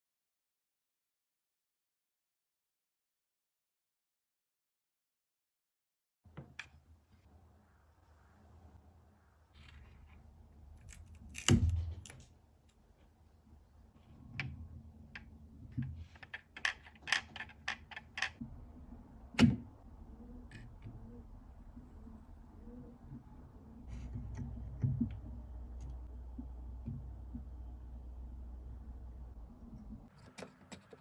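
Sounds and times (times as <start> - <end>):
hard objects clicking: 16.1 - 18.4.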